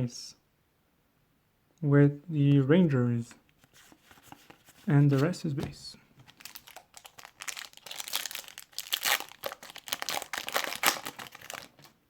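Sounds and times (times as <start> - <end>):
foil wrapper crinkling: 6.2 - 12.0.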